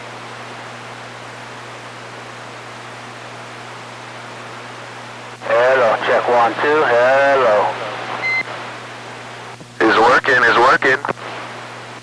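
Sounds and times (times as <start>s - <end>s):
radio static hiss: 5.4s - 12.0s.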